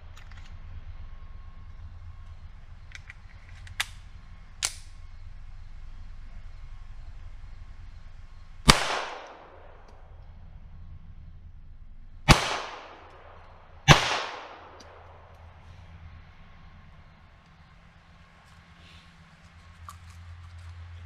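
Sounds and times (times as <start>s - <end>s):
pistol shots: 8.6s - 10.0s, 12.2s - 15.4s.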